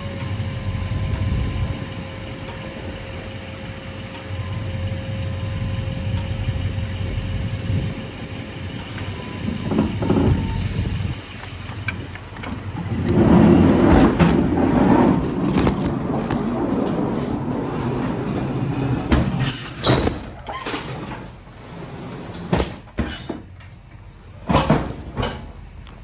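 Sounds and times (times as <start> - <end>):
pallet jack rumbling and rattling: 0.0 - 26.0.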